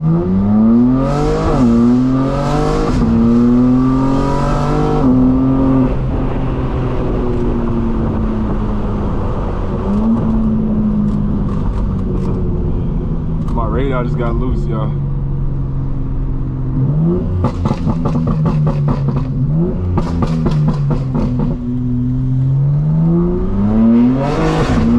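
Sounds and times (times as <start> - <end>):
car engine accelerating hard: 0.0 - 24.9.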